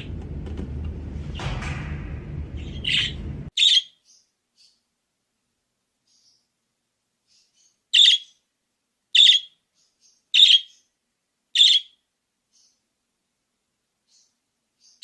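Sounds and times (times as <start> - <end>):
budgerigar sharp chirps: 8.0 - 8.4, 11.6 - 11.9.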